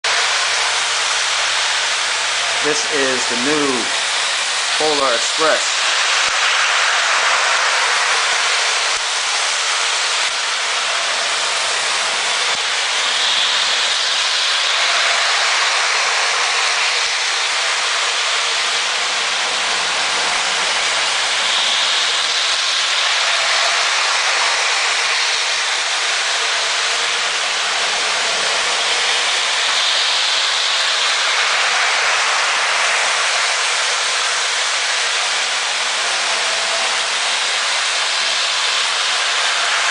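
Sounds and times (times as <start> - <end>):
toy train whirring on track: 0.0 - 39.9.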